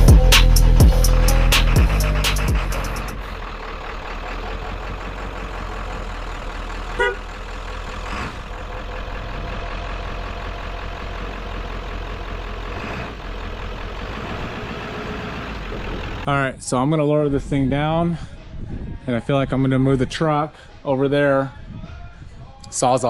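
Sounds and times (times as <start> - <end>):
engine idling: 0.0 - 16.3.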